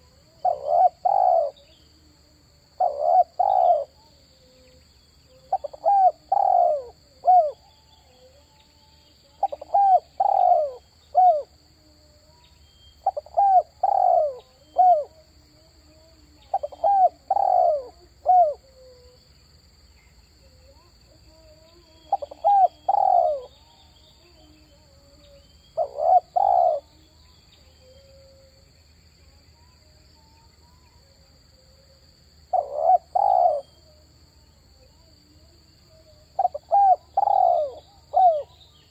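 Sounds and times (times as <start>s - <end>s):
dove cooing: 0.0s - 1.7s, 2.7s - 8.5s, 9.3s - 11.6s, 13.0s - 19.2s, 20.7s - 27.1s, 32.5s - 34.1s, 34.8s - 38.9s.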